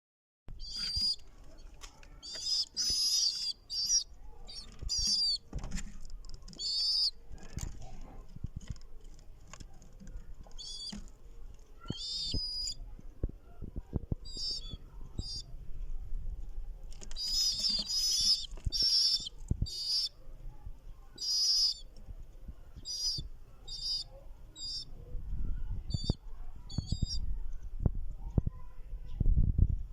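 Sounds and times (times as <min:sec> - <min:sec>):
pigeon chicks squeaking: 0:00.5 - 0:13.0, 0:14.0 - 0:15.5, 0:16.9 - 0:22.0, 0:22.7 - 0:25.1, 0:25.8 - 0:27.3.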